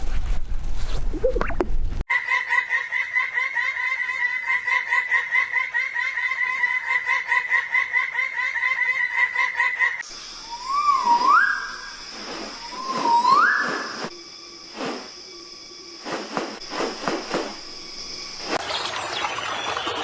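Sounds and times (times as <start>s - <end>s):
bird laugh-like chatter: 2.2s - 10.0s
steady hiss: 10.0s - 19.1s
rising whistled bird call: 10.1s - 14.1s.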